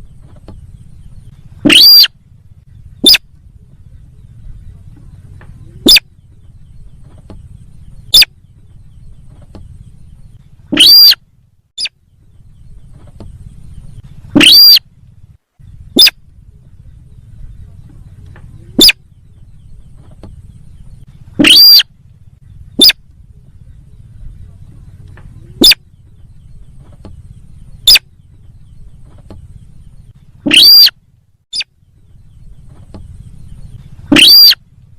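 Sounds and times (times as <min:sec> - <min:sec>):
bird calls with upward sweep: 0:00.0 - 0:34.9
faint low hum: 0:00.0 - 0:34.9.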